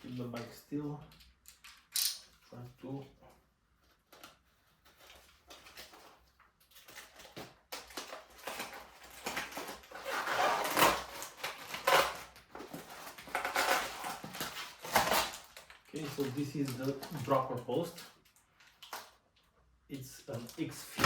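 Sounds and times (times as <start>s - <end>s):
packaging rustling: 4.0s - 19.5s, 20.3s - 21.0s.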